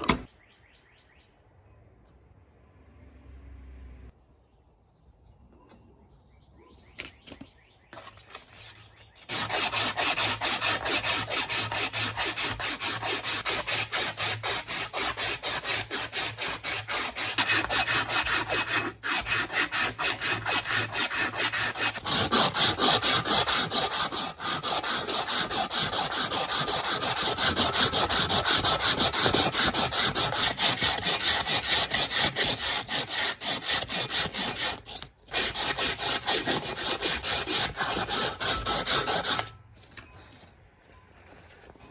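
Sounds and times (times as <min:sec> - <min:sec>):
hand tool scraping strokes: 0:08.0 - 0:39.6.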